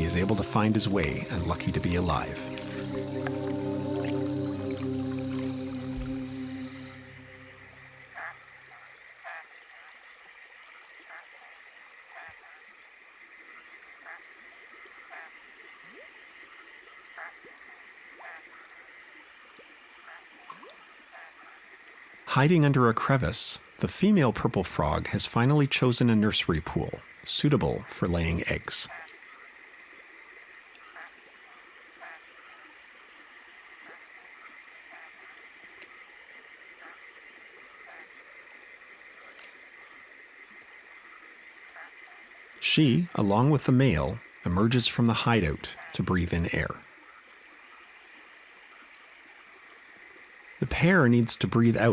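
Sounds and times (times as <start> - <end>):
steady insect drone: 0.0 - 9.9, 28.2 - 43.0
running water: 0.0 - 51.9
stream flowing: 0.0 - 51.9
pulsing high buzz: 0.8 - 8.2.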